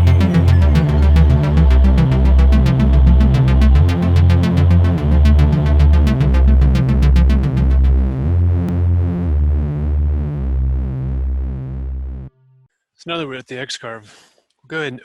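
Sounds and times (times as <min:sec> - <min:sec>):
high ticking percussion: 0:00.0 - 0:03.5
electronic music with synthesizer: 0:00.0 - 0:11.1
pulsing bass beat: 0:00.0 - 0:12.2.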